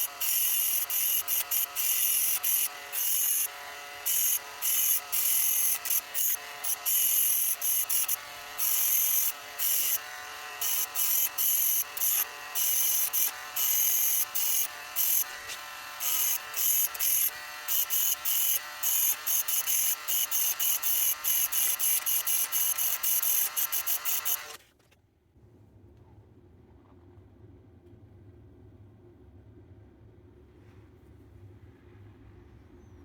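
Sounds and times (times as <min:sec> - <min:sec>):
power tool whining in bursts: 0:00.0 - 0:24.6.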